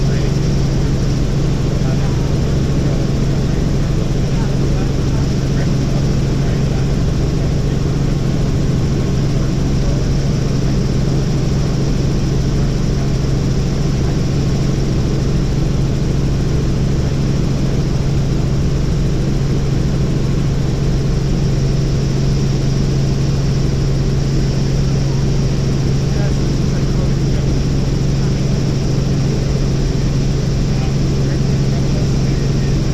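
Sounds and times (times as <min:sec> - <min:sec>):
helicopter rotor and engine drone: 0:00.0 - 0:32.9.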